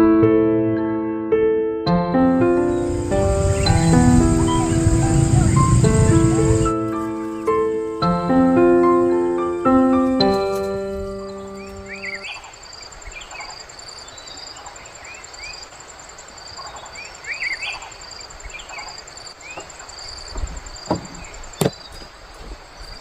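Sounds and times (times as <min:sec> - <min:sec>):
insects pulsing trill: 0:02.4 - 0:23.0
small birds chirping: 0:02.5 - 0:23.0
insect short chirp: 0:02.6 - 0:08.2, 0:11.2 - 0:23.0
soft knocks: 0:19.5 - 0:22.6.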